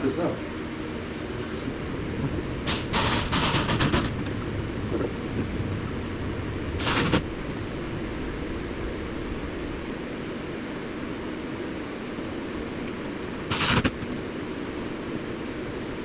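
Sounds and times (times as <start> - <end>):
impact driver bursts: 2.7 - 4.1.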